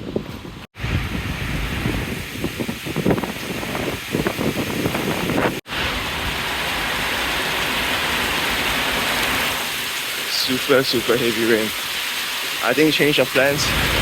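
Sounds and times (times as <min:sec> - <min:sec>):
wind buffeting microphone: 0:00.0 - 0:06.5, 0:13.5 - 0:14.0
heavy rain downpour: 0:00.8 - 0:14.0.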